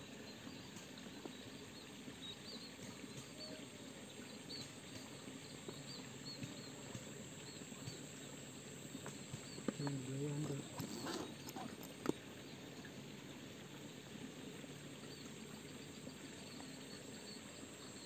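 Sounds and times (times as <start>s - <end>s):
small bird chirping: 0.2s - 12.6s.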